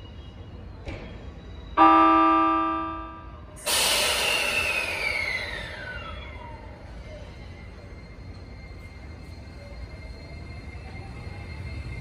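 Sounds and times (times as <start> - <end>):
loud rush of air: 3.6 - 5.8.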